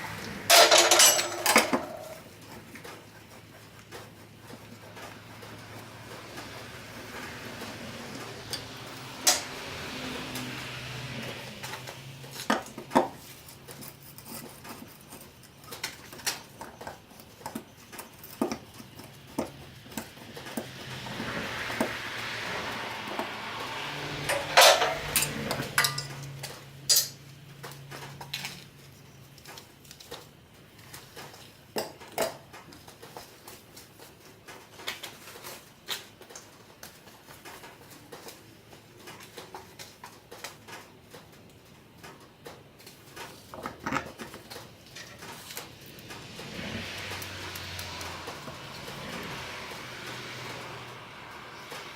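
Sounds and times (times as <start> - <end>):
metal tools clinking: 0.5 - 2.3, 24.3 - 27.2.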